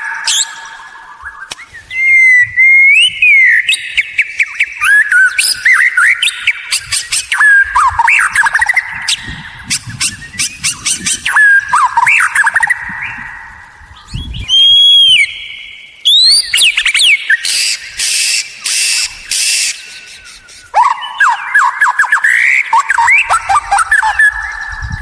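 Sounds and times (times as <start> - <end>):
bird singing varied song: 0.0 - 25.0
bird harsh rasping notes: 17.4 - 25.0.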